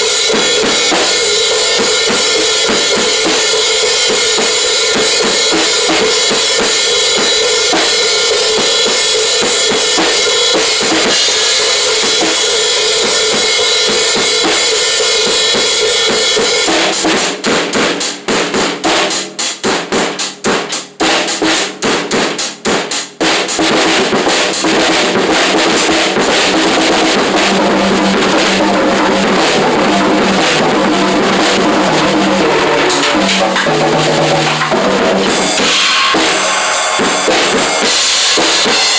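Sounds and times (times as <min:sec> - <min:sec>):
cymbals washing: 0:00.0 - 0:16.7, 0:24.7 - 0:38.9
drum kit played hard: 0:00.0 - 0:38.9
loud rock music: 0:25.6 - 0:38.9.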